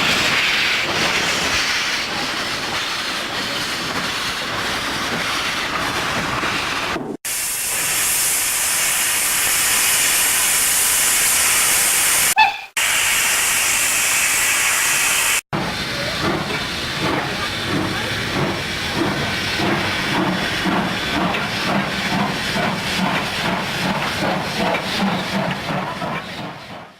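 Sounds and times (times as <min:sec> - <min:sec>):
locomotive steam hissing: 0:00.0 - 0:26.9
steam locomotive rhythmic beat: 0:15.6 - 0:26.9.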